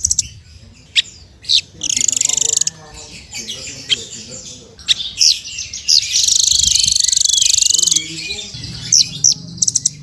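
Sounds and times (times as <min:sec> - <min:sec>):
songbird whistling: 0:04.9 - 0:10.0
bird rattling trill: 0:06.0 - 0:08.0.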